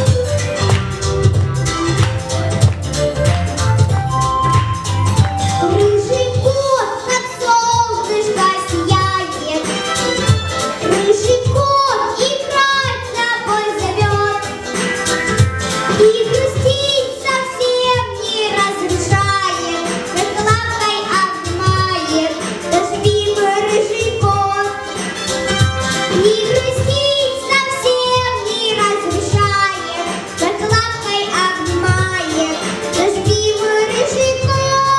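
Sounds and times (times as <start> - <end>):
backing track with steady beat: 0.0 - 34.9
girl singing: 5.6 - 9.8, 10.8 - 14.5, 15.9 - 24.9, 26.1 - 34.9.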